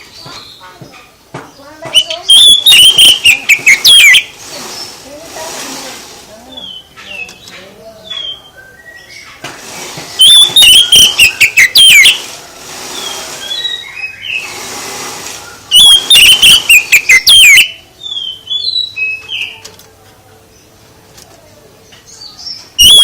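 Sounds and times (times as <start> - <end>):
songbird singing: 0.0 - 14.6, 15.3 - 23.0.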